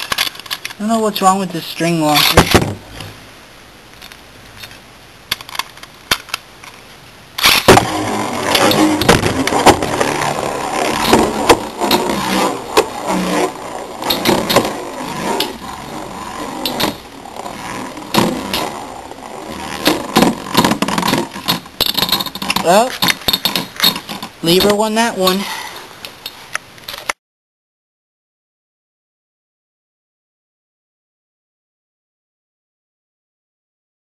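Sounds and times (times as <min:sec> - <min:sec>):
spinning tops launched from string: 0:07.4 - 0:22.0
spinning tops colliding knocks: 0:07.4 - 0:25.4
spinning tops whirring rattle: 0:07.4 - 0:25.5.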